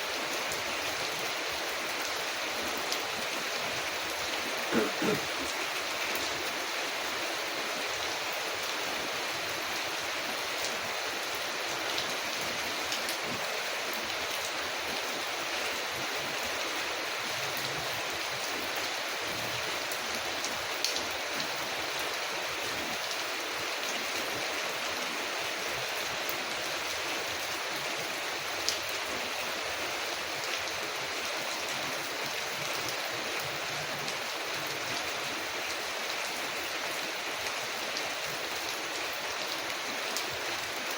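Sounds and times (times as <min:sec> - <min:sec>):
rain on a window: 0:00.1 - 0:40.9.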